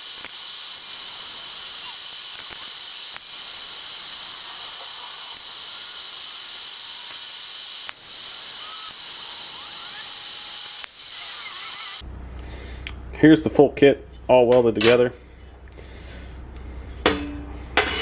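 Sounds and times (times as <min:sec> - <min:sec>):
arc welding sizzle: 0:00.0 - 0:12.0.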